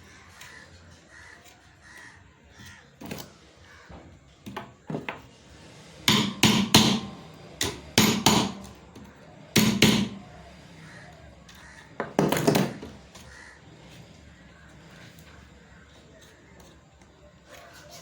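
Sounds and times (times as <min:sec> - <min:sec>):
sharp ringing knocks on metal: 0:06.1 - 0:08.6, 0:09.6 - 0:10.2.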